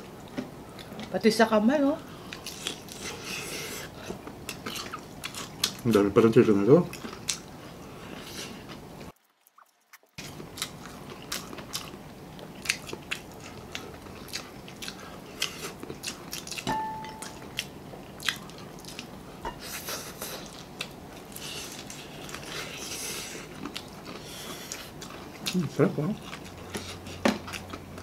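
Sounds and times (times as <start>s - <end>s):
crunching and chewing fried chicken: 2.0s - 28.0s.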